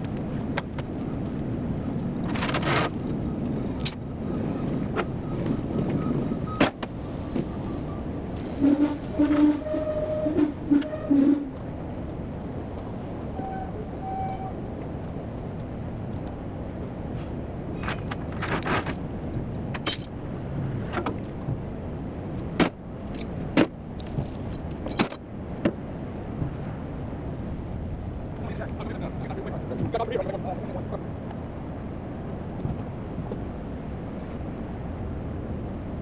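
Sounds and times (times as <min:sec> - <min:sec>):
engine rumble: 0:00.0 - 0:36.0
metallic clinks and clanks: 0:02.3 - 0:04.0, 0:19.7 - 0:20.1, 0:22.5 - 0:25.2.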